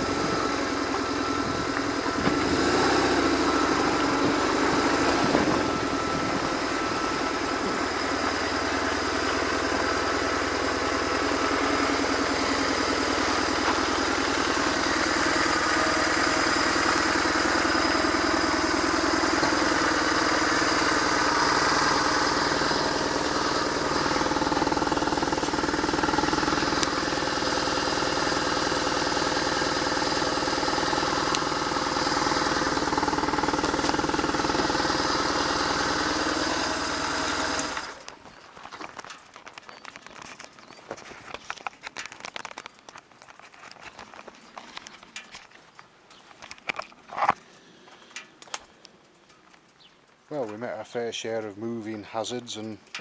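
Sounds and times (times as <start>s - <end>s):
motorcycle engine running: 0.0s - 42.0s
wind noise on microphone: 1.3s - 2.9s, 5.1s - 6.8s.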